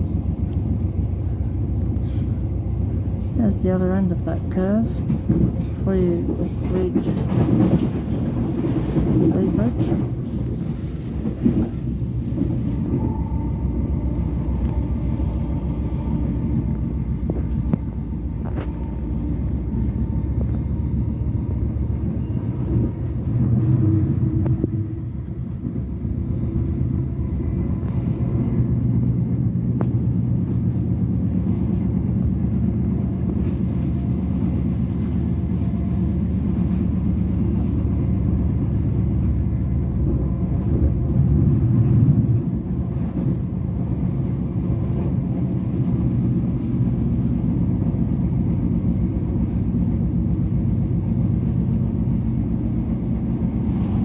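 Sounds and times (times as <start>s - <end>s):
train wheels rumbling on track: 0.0s - 54.0s.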